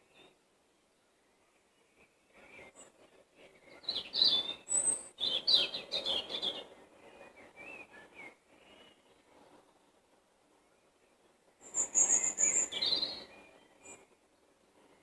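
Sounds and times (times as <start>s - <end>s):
songbirds singing: 0.0s - 9.5s, 10.5s - 15.0s
bird calls: 11.6s - 14.1s.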